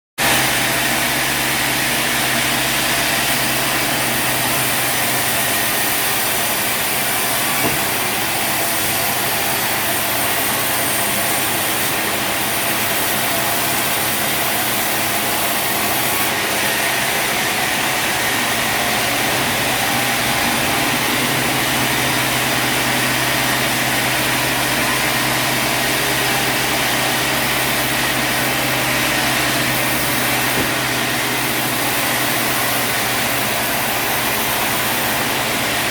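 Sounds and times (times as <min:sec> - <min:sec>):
sawmill engine running: 0:00.2 - 0:35.9.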